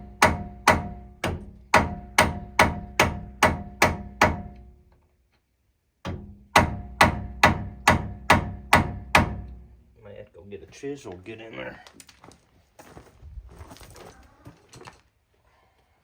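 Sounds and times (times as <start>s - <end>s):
hammer ringing on metal: 6.1s - 9.5s.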